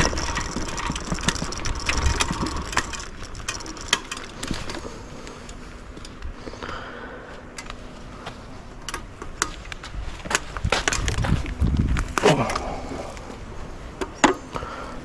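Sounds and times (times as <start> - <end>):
scooter knocking and rattling: 0.0 - 6.4, 8.8 - 12.8, 13.9 - 14.8
heavy low rumble: 0.0 - 14.0
tyre and trail noise: 0.0 - 15.0.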